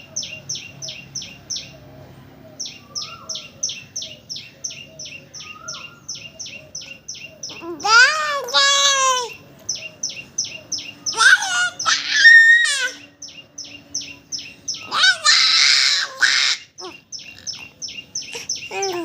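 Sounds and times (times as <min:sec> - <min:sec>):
small birds chirping: 0:00.0 - 0:19.0
child calling and squealing: 0:07.5 - 0:09.4, 0:11.1 - 0:13.1, 0:14.8 - 0:17.0, 0:18.4 - 0:19.0.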